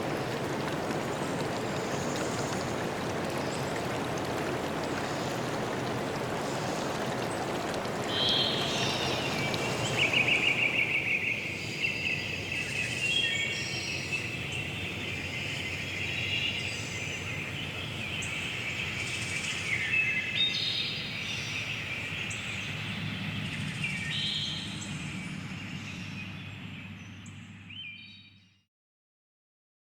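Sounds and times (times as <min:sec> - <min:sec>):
rushing water: 0:00.0 - 0:26.0
small birds chirping: 0:08.1 - 0:28.1.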